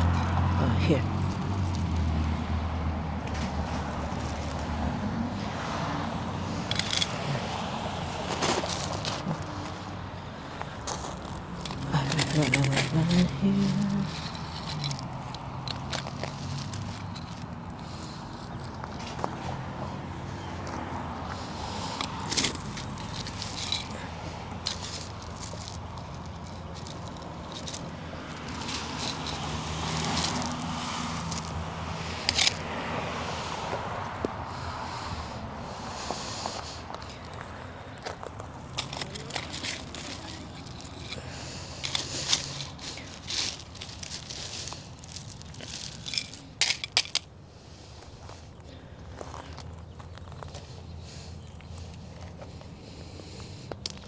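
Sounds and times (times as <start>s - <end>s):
crackling and scraping of weeds: 0.0s - 54.0s
crunching in gravelly soil: 0.0s - 54.0s.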